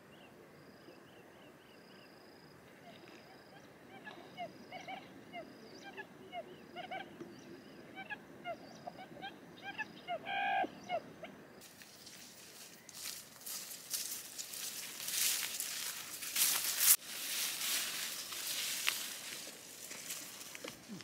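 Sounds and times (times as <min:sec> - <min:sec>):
birds chirping: 0:02.7 - 0:21.0
footsteps rustling through tall grass: 0:11.6 - 0:21.0.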